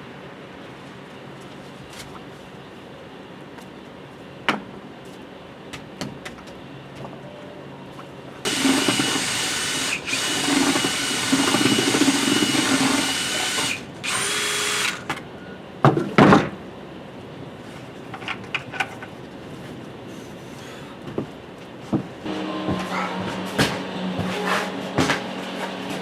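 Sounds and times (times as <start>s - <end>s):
power drill whining: 8.5s - 15.1s.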